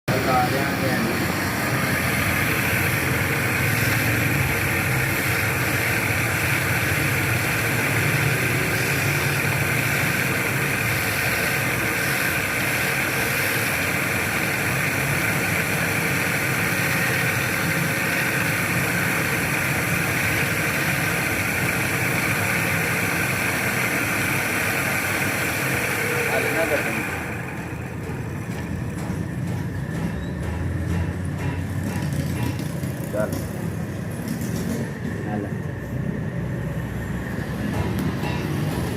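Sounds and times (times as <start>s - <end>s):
wood lathe running: 0.1s - 30.0s.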